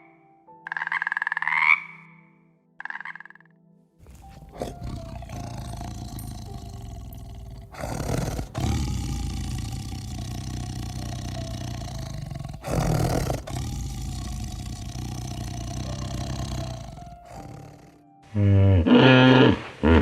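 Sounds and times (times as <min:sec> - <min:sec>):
lion roaring: 0:04.0 - 0:18.0.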